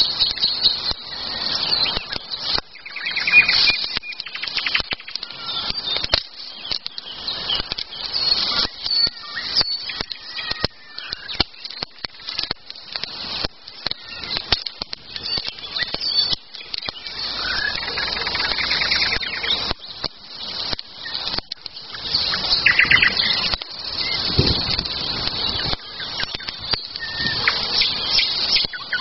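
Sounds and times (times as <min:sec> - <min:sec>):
campfire crackling: 0:00.0 - 0:29.0
songbirds singing and chirping: 0:00.0 - 0:29.0.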